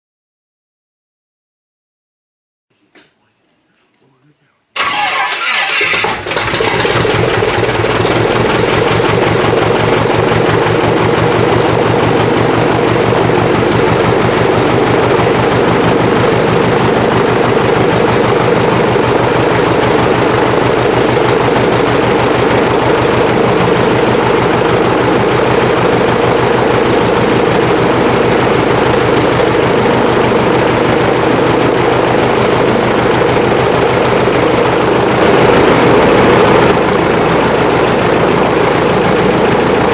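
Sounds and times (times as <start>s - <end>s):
propeller aircraft engine running: 4.8s - 39.9s.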